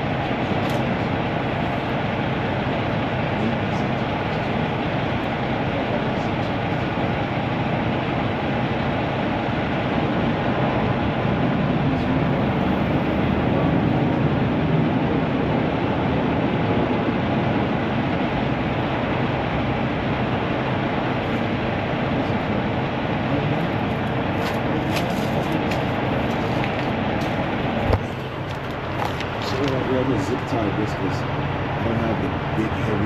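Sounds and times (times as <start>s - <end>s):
truck engine idling: 0.0s - 33.0s.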